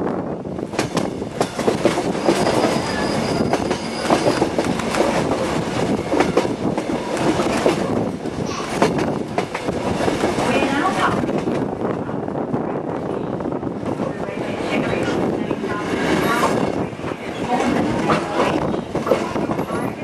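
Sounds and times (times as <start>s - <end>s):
train wheels rumbling on rail: 0.0s - 20.0s
high wheel squeal: 2.1s - 4.6s.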